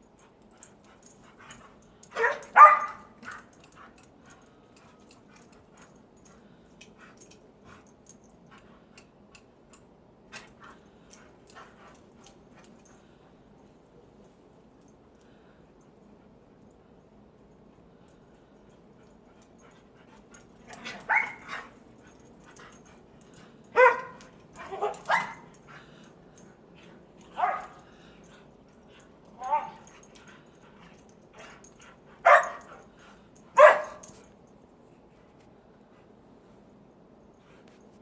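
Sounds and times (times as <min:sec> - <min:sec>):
dog barking: 0:02.2 - 0:03.5, 0:21.1 - 0:21.4, 0:23.8 - 0:25.5, 0:27.4 - 0:27.8, 0:29.4 - 0:29.8, 0:32.2 - 0:32.6, 0:33.6 - 0:34.0.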